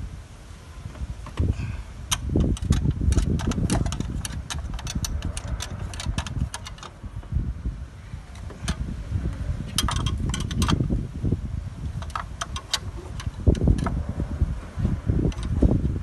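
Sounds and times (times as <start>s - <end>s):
diesel engine rumbling: 0.0s - 16.0s
sharp clicks and knocks: 2.1s - 7.4s, 8.3s - 10.9s, 11.9s - 14.1s, 15.2s - 16.0s.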